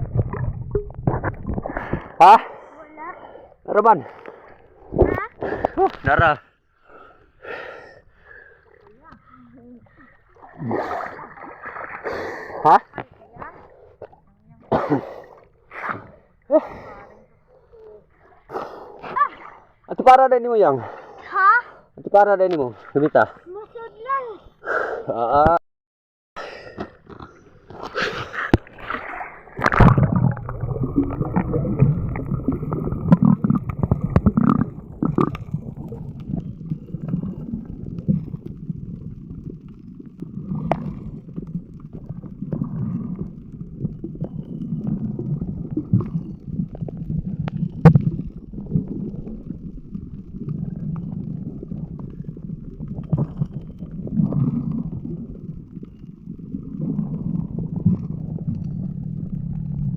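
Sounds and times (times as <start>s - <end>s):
boat engine rumbling: 0.0s - 2.3s.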